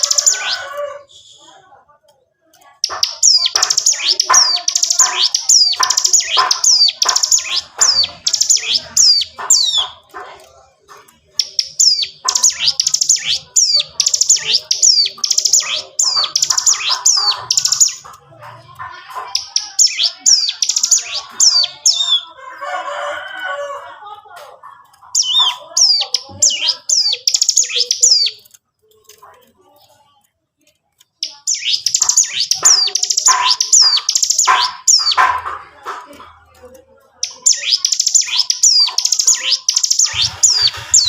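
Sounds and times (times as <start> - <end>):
bird singing rattling runs: 2.8 - 22.2, 31.1 - 36.0, 37.2 - 41.0.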